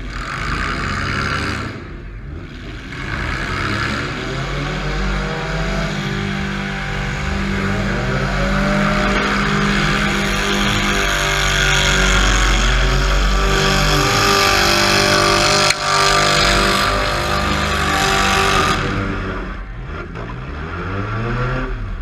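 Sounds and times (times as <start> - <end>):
car engine revving hard: 0.0 - 22.0.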